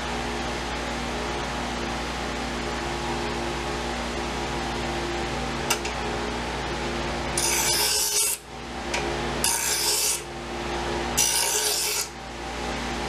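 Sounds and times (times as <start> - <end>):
knife blade grinding: 7.4 - 8.4, 9.4 - 10.3, 11.2 - 12.2.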